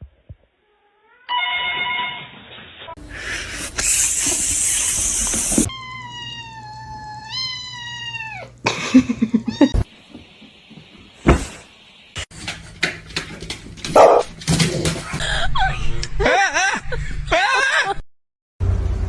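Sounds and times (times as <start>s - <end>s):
cat meowing: 5.7s - 8.6s, 9.5s - 9.9s.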